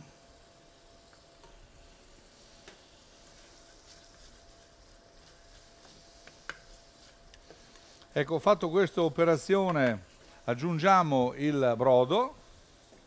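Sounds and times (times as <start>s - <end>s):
meat sizzling in a saucepan: 0.0s - 13.0s
spatula stirring paste: 3.2s - 8.2s.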